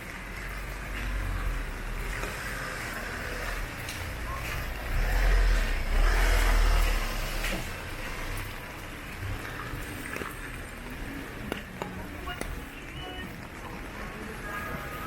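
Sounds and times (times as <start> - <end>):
traffic hum: 0.0 - 15.0
vehicle passing close by: 4.7 - 8.5.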